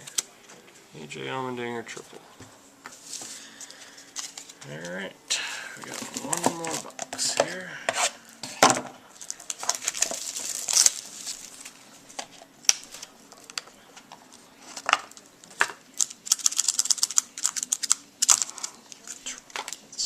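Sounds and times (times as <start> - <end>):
plastic wrapping crinkling: 5.8 - 7.5, 8.5 - 20.0.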